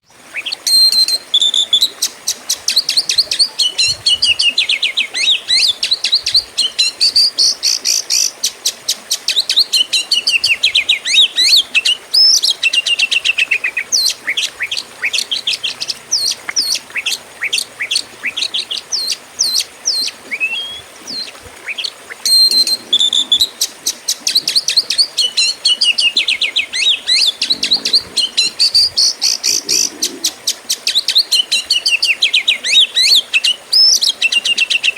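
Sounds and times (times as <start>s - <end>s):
bird singing rapid chirps and trills: 9.1s - 34.9s.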